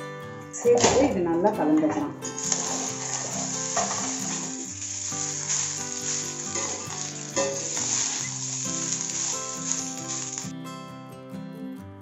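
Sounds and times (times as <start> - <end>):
background music: 0.0 - 12.0
ladle scraping a pan: 2.2 - 10.5
rice sizzling in a pan: 2.3 - 10.5.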